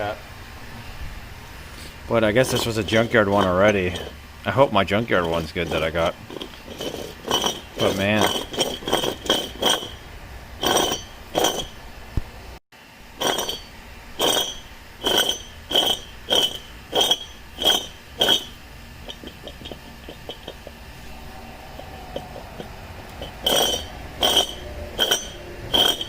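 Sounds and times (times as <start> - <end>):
sharp metallic clinks: 21.6 - 26.0.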